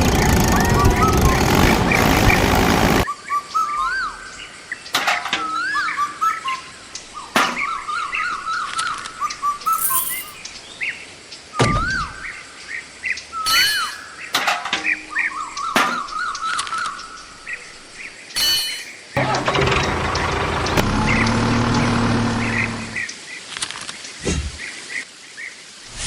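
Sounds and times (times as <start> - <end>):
small motor running: 0.0 - 3.0
birds singing whistled phrases: 3.1 - 4.4, 5.4 - 9.9.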